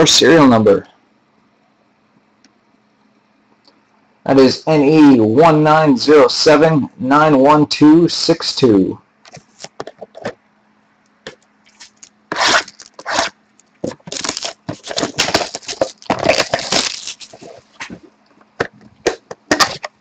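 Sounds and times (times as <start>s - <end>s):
plastic wrap tearing and crinkling: 11.7s - 18.0s
cardboard scraping: 11.7s - 18.1s.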